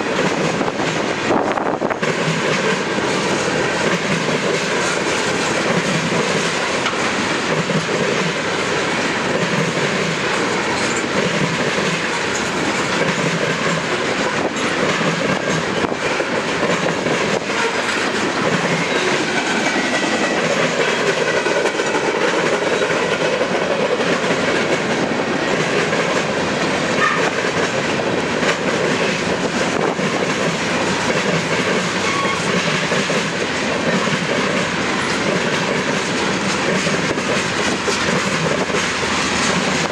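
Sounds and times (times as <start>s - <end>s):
freight train wheels clacking: 0.0s - 39.9s.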